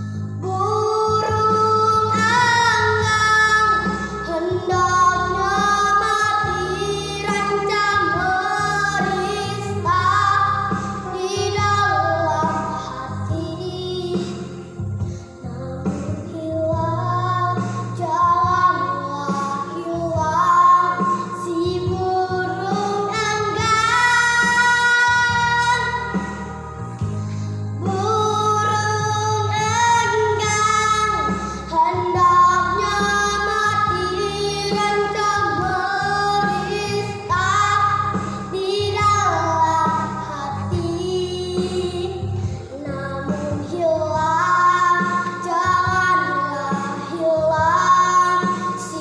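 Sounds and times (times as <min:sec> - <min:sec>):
girl singing: 0:00.0 - 0:49.0
instrumental accompaniment: 0:00.0 - 0:49.0.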